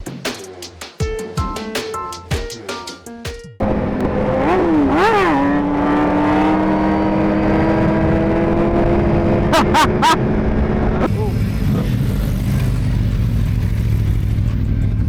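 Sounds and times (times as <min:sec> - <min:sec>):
motorcycle engine revving: 0:03.6 - 0:15.0.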